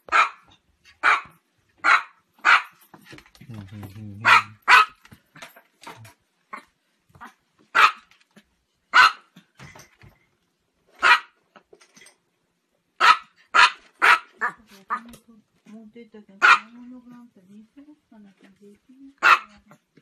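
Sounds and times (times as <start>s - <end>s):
small dog yapping: 0.1s - 2.7s, 7.2s - 8.1s, 11.0s - 11.4s, 13.0s - 15.0s, 19.2s - 19.8s.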